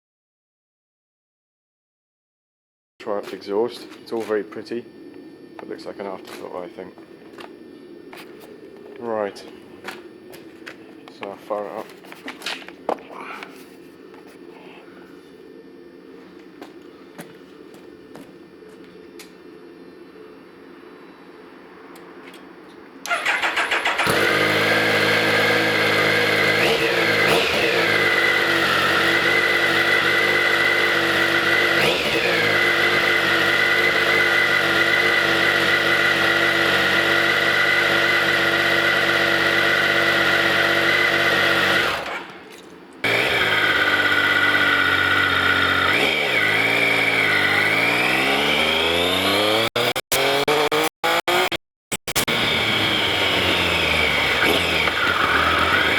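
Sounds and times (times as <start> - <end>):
motorcycle engine revving: 23.1 - 55.9.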